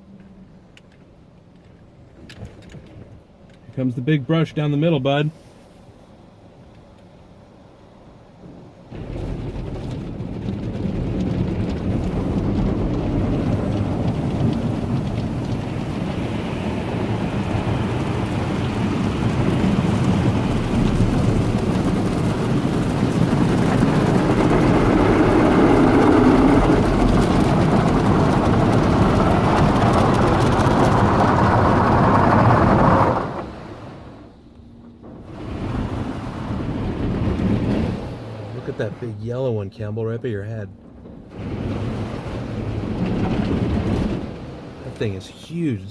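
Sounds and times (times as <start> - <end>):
water splashing on vehicle: 8.9 - 34.3, 35.2 - 39.3, 41.3 - 45.9
car wash brush scrubbing: 10.1 - 34.2.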